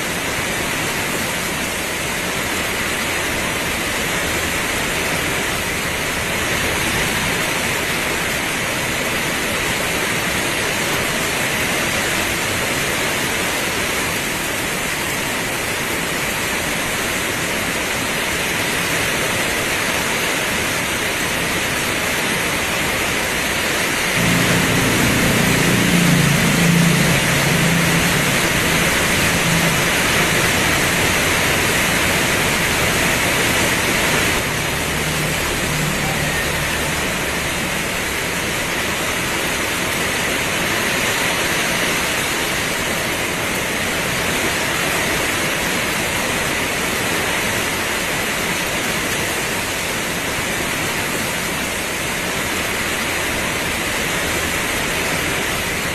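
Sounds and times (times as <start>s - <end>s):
heavy rain pouring: 0.0s - 55.9s
low rumble: 24.2s - 39.4s.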